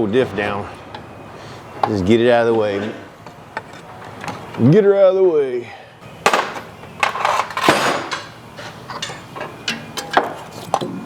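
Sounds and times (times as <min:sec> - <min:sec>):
metal clanking of hand tools: 0:06.2 - 0:11.0.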